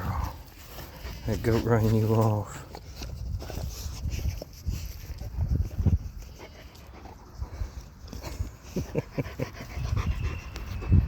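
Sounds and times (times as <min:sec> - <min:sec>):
dog panting: 0:04.8 - 0:11.0.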